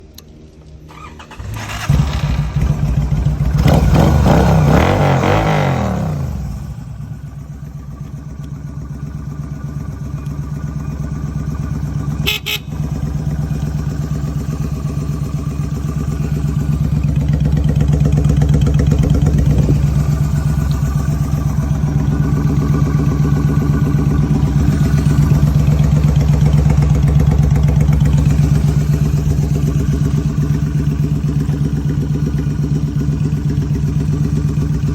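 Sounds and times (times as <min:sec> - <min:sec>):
motorcycle engine revving and idling: 0:00.2 - 0:34.9.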